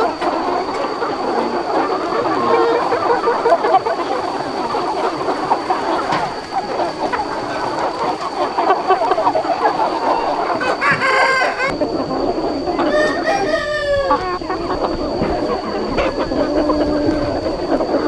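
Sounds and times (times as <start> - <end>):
chickens clucking: 0.0 - 18.0
rooster crowing: 9.3 - 11.8, 12.4 - 17.4.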